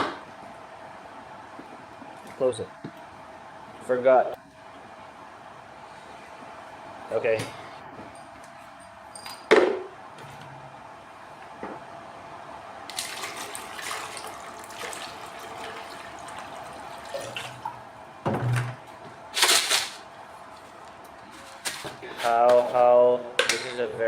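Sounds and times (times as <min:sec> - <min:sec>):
water pouring into reservoir: 0:12.9 - 0:17.6.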